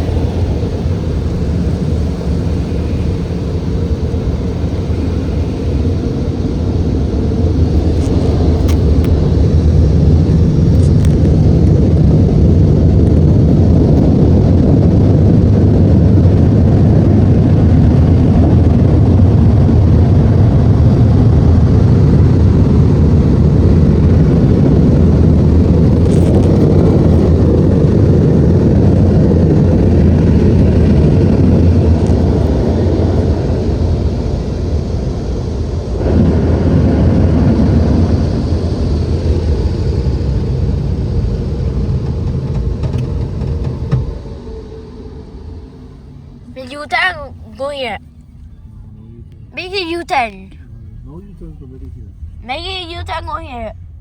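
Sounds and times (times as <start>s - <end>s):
car wash machinery rushing: 9.6s - 49.0s.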